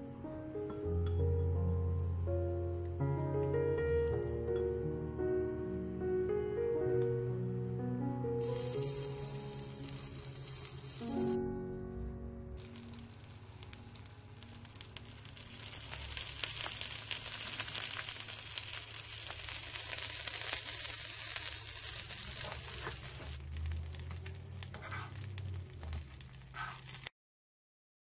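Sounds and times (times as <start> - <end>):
eggplant sizzling in frying pan: 8.4 - 11.4, 12.6 - 27.1.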